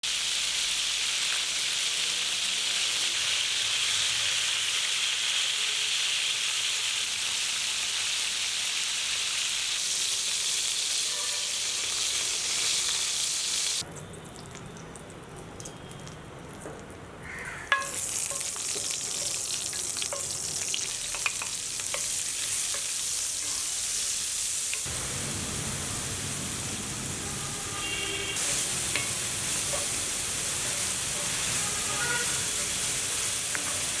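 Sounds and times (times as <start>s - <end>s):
food sizzling in hot oil: 0.0s - 13.9s, 17.7s - 34.0s
utensil clicking against pan: 21.1s - 22.1s.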